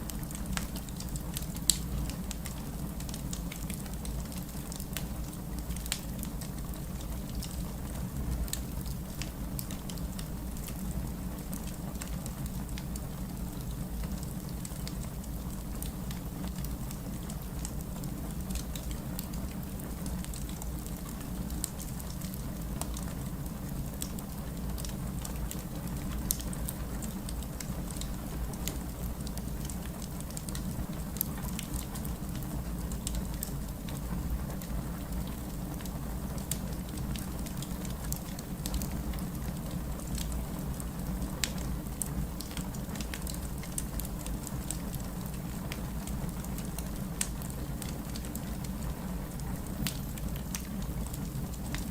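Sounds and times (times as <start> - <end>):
wood fire crackling: 0.0 - 51.9.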